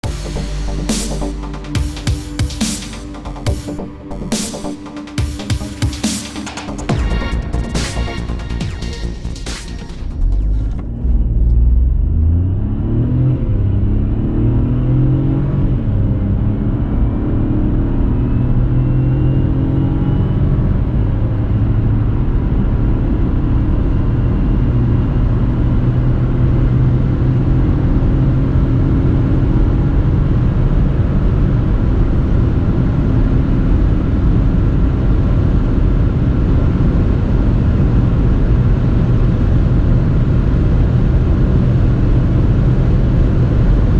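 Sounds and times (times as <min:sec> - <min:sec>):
car engine accelerating hard: 0:10.2 - 0:31.5.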